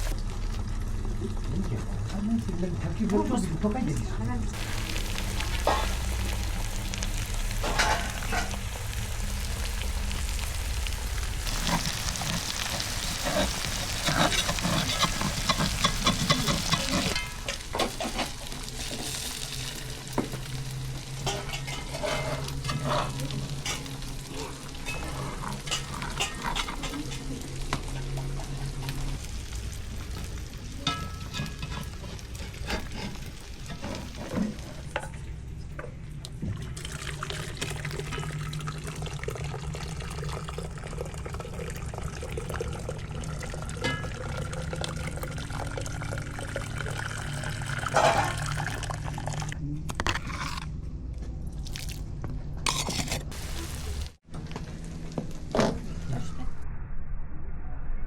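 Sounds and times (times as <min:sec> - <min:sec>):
low steady hum: 0:00.0 - 0:58.0
food sizzling in a pan: 0:04.5 - 0:34.9, 0:52.7 - 0:54.2
utensil clicking and scraping: 0:11.5 - 0:17.2.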